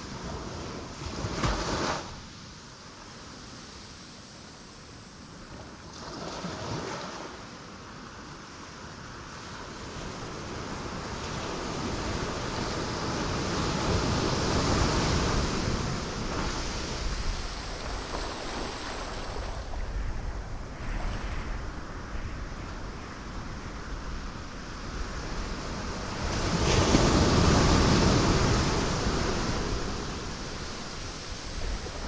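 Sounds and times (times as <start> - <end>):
ocean waves breaking on rocks: 10.8 - 32.0.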